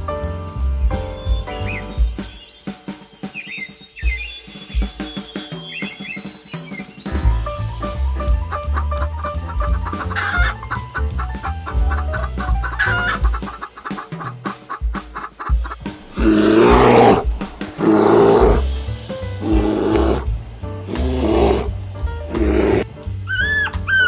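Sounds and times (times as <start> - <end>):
music with drum beat: 0.0 - 24.0
chickens clucking: 8.5 - 16.0
loud rough chicken calls: 9.9 - 10.6, 12.7 - 18.6, 19.4 - 20.2.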